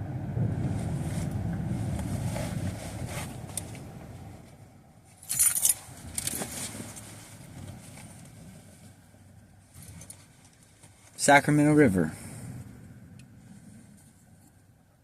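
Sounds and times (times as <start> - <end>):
low rumble: 0.0 - 10.4.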